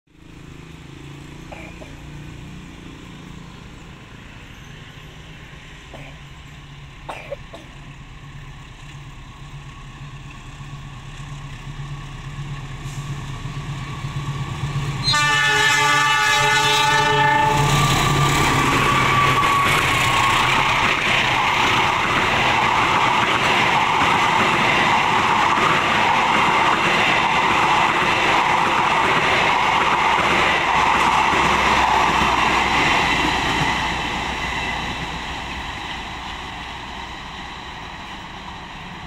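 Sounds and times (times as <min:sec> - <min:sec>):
diesel train running: 0:00.1 - 0:39.0
locomotive horn blast: 0:15.0 - 0:20.4.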